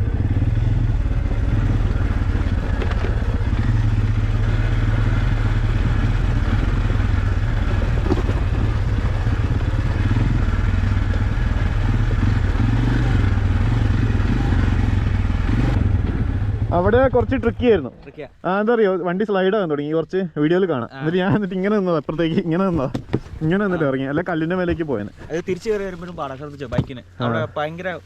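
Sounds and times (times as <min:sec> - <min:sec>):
off-road vehicle engine: 0:00.0 - 0:18.5, 0:21.0 - 0:28.0.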